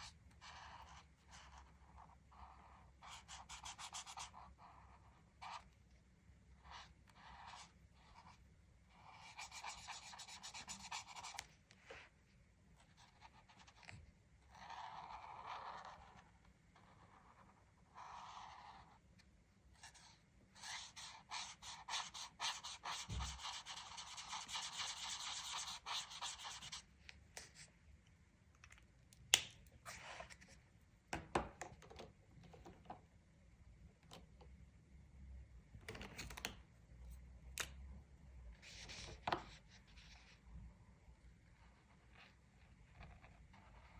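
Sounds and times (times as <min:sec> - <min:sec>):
scratchy colouring strokes: 0:19.7 - 0:27.8.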